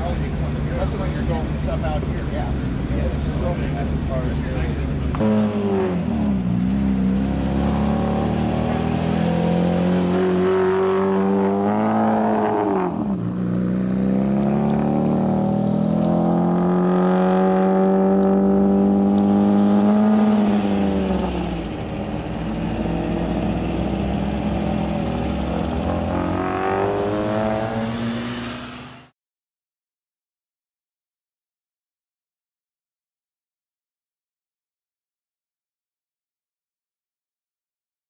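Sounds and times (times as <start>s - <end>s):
engine accelerating: 0.0s - 29.1s.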